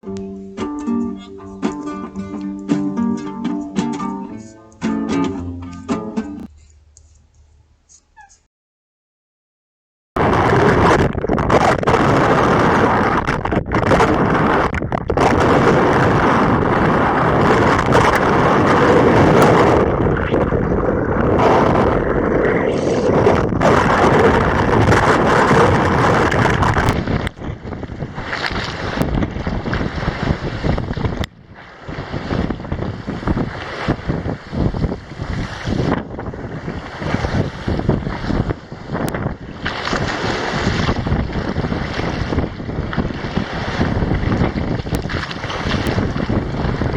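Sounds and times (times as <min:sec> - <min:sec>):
water rushing along hull: 0:10.2 - 0:46.9
wind buffeting microphone: 0:10.2 - 0:46.9.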